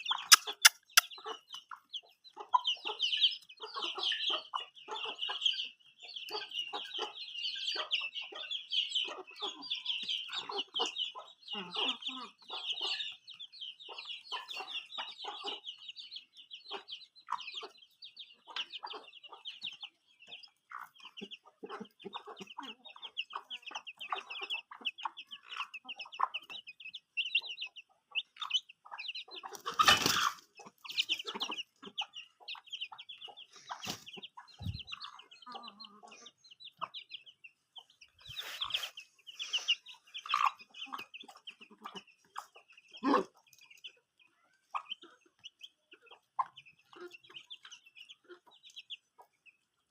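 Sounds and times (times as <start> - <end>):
chicks peeping: 0.0 - 49.9
hen clucking: 0.0 - 49.9.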